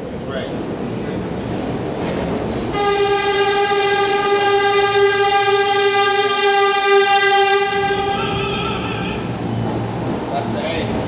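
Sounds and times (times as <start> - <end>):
train rumble: 0.0 - 11.0
train horn blast: 2.7 - 9.3.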